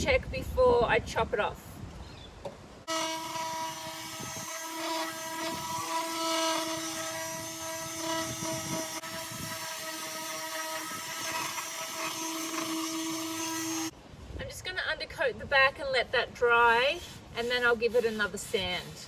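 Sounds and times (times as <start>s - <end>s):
electric power tool whining: 2.9s - 13.9s.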